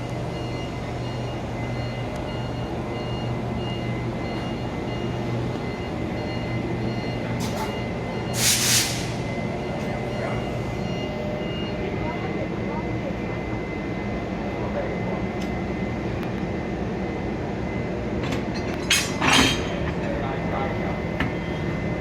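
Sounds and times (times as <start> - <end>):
locomotive low hum: 0.0 - 22.0
air hiss: 8.4 - 9.2
compressed air puff: 8.4 - 9.2.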